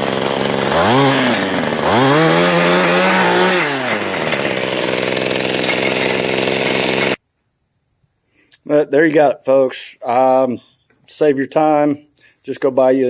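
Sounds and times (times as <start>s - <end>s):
small engine revving and idling: 0.0s - 7.2s.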